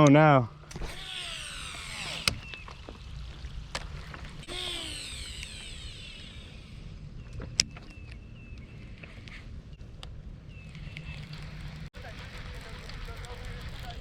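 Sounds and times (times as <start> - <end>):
sharp clicks: 0.0 - 2.6, 3.7 - 8.7
fishing reel whirring: 0.7 - 3.1, 3.7 - 7.1, 10.7 - 14.0.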